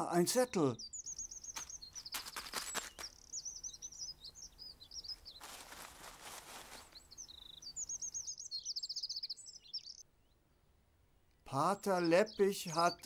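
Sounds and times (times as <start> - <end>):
songbirds chirping and trilling: 0.0 - 13.0
brief rustle: 1.6 - 3.1, 5.4 - 7.0.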